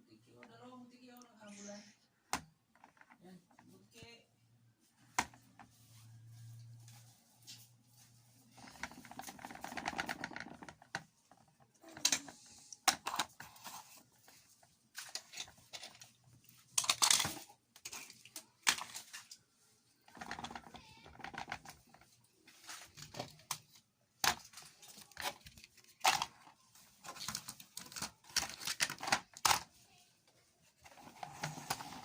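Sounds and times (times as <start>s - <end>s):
plastic toy vehicles clattering: 8.5s - 29.8s, 30.7s - 32.0s.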